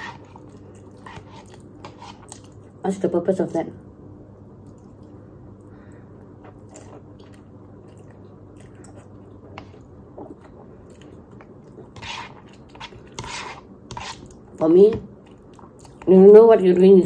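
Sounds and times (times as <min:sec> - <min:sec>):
chewing food: 0:04.6 - 0:13.2, 0:15.2 - 0:16.1.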